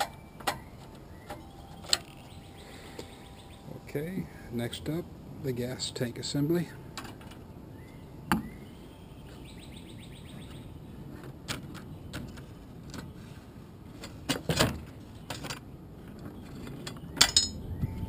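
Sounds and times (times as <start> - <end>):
tools and metal parts knocking: 16.2 - 17.7.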